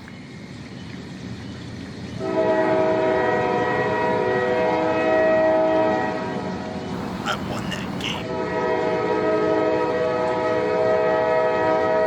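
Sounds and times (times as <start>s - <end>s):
train horn chord: 2.2s - 6.3s, 8.3s - 12.0s
train rumble: 6.4s - 8.9s.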